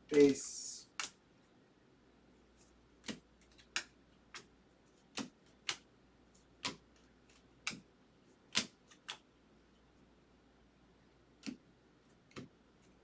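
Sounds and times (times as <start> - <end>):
trading cards snapping: 0.9 - 1.2, 3.0 - 4.5, 5.1 - 5.8, 6.6 - 7.9, 8.5 - 9.2.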